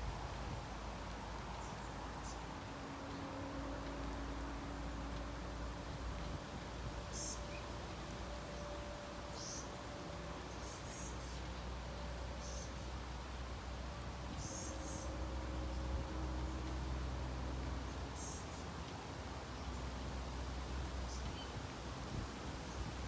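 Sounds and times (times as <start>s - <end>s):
low outdoor rumble: 0.0s - 23.0s
small birds chirping: 7.1s - 7.7s, 9.3s - 11.6s, 12.4s - 12.8s, 17.9s - 19.0s.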